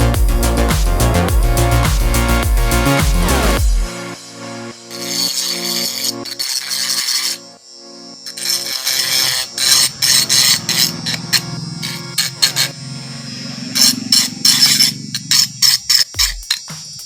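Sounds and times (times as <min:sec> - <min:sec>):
short scraping strokes: 0:04.9 - 0:07.4, 0:08.3 - 0:12.8.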